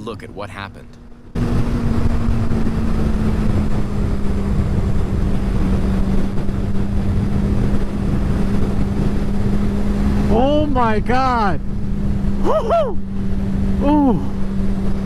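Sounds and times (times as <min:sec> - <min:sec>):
motorcycle engine drone: 0:00.0 - 0:15.0
wind rush on microphone: 0:01.0 - 0:15.0.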